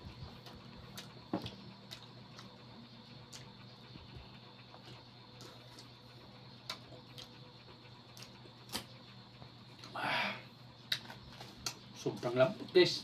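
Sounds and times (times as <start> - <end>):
person chewing with wet clicks: 0.3 - 3.7, 6.6 - 7.4, 8.1 - 8.9, 9.8 - 10.0.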